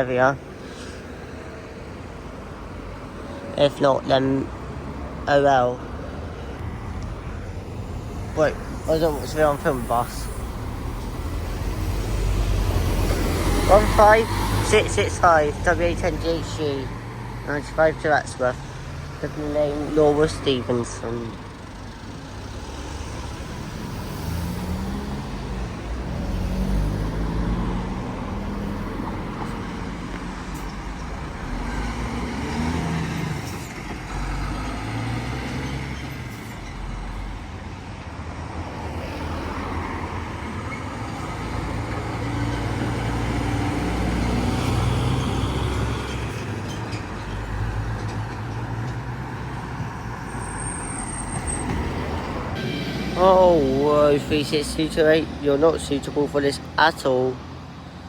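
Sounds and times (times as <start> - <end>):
diesel buses accelerating: 0.0 - 58.0
tyre and traffic hiss: 7.9 - 16.9.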